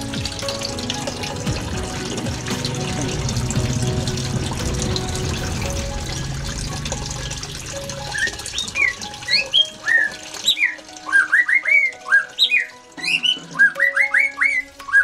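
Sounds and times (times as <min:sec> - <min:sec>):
small birds chirping sharply: 0:08.1 - 0:15.0.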